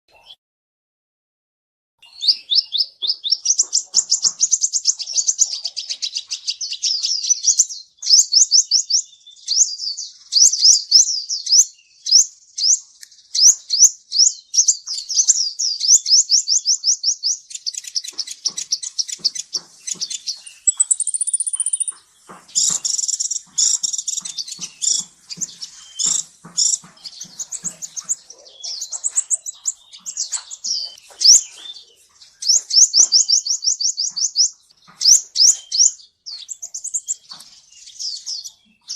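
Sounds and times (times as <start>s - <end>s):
sunbird singing chattering song: 2.0s - 38.9s.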